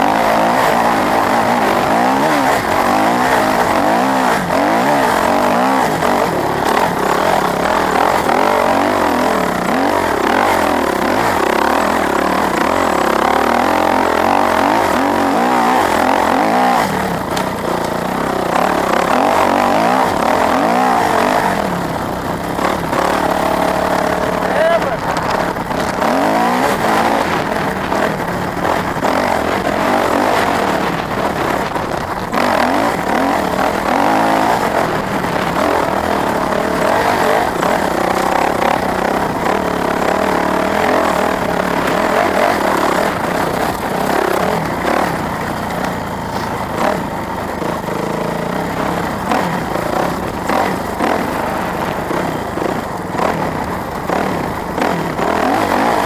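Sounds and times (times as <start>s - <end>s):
dirt bike engine revving: 0.0s - 56.0s
wind noise: 18.6s - 45.3s.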